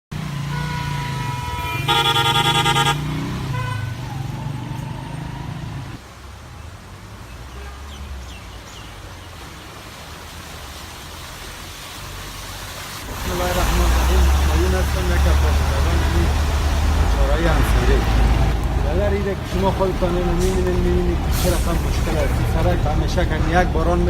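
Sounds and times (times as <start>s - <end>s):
traffic rumble: 0.1s - 24.0s
car horn: 0.4s - 4.1s.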